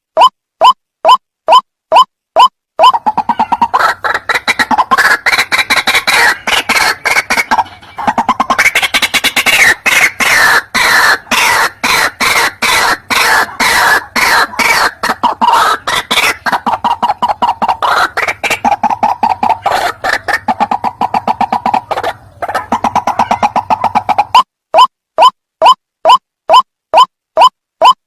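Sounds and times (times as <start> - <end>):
bird calling harsh repeated notes: 0.1 - 28.0.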